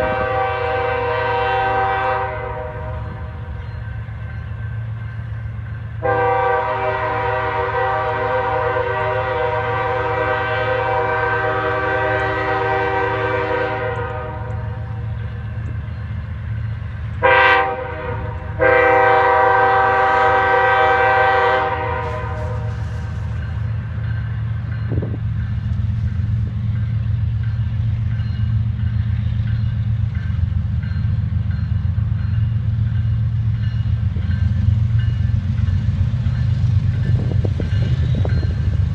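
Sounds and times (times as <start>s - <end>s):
locomotive air horn blasts: 0.0s - 3.5s, 6.0s - 15.1s, 17.2s - 23.5s
train engines rumbling: 0.0s - 38.9s.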